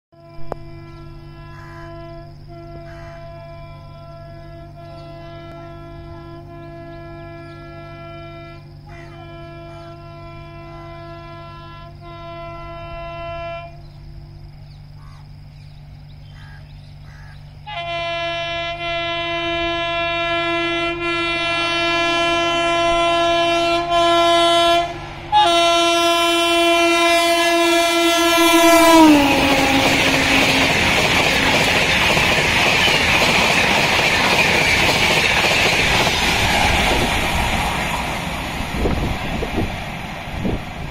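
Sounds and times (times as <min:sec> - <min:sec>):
locomotive horn: 0:00.1 - 0:14.0, 0:17.6 - 0:35.1
train rushing past: 0:20.7 - 0:40.9.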